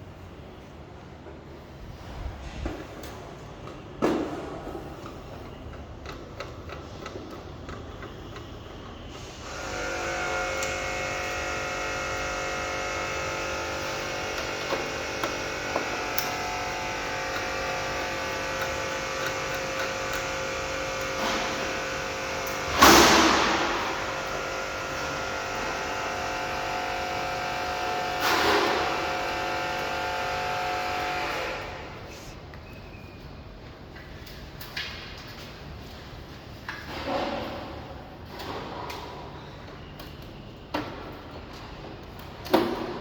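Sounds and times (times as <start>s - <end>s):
machine humming: 7.7s - 32.4s.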